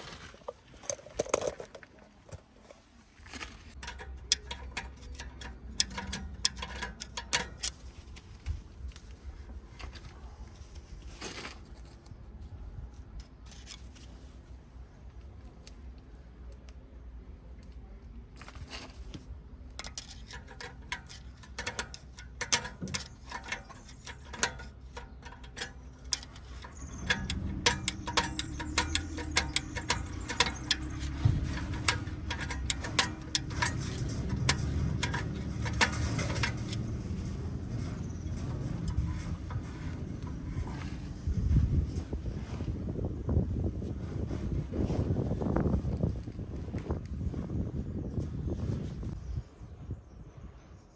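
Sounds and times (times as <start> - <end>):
metallic clicking and ratcheting: 0.8 - 1.9, 3.7 - 7.9, 19.8 - 41.0
low rumble: 25.7 - 49.2.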